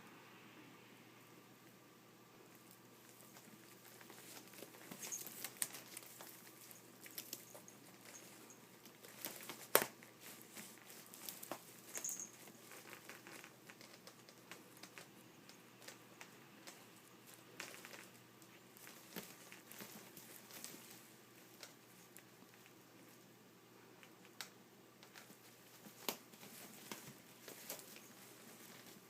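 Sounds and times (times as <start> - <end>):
cat scratching in a basket: 3.0 - 15.2, 25.0 - 29.0.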